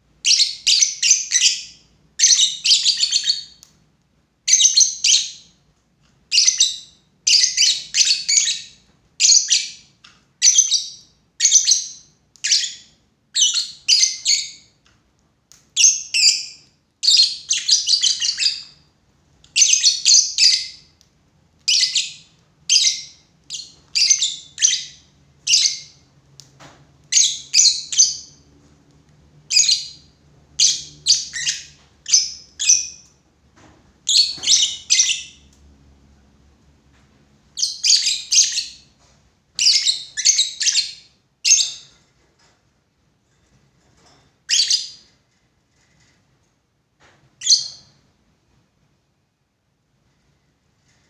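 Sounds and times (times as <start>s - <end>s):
lovebirds chirping: 15.7s - 18.8s, 21.6s - 26.0s, 29.5s - 33.1s, 34.0s - 35.5s, 37.5s - 38.9s, 39.6s - 41.9s.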